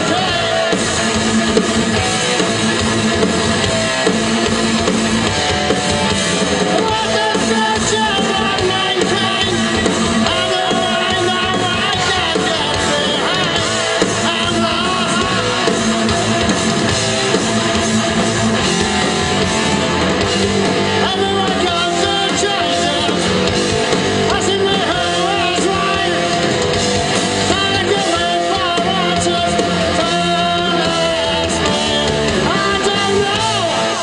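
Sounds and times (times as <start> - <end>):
person singing: 0.0 - 1.0, 6.6 - 16.6, 20.7 - 26.7, 27.4 - 34.0
electric guitar: 0.0 - 34.0
rock band playing live: 0.0 - 34.0.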